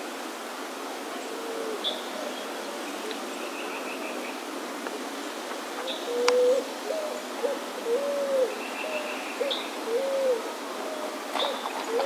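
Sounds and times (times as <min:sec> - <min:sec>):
bird hooting call: 0:05.8 - 0:12.0.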